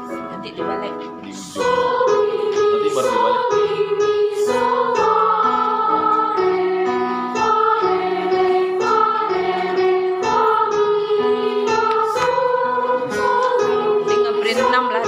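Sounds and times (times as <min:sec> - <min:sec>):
children's choir singing: 0:01.3 - 0:15.0.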